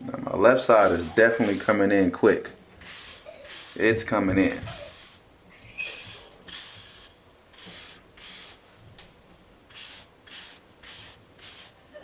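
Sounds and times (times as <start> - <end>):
brush strokes through short hair: 0.6 - 1.9, 2.8 - 5.2, 5.8 - 8.7, 9.7 - 11.8.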